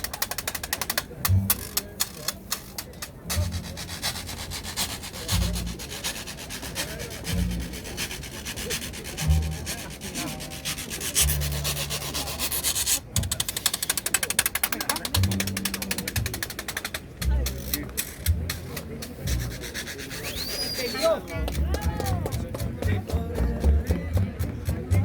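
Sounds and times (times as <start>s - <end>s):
rubbing on phone microphone: 2.1s - 16.6s, 17.4s - 20.9s
dull low thumps: 7.2s - 8.4s, 17.1s - 19.8s, 21.3s - 25.0s.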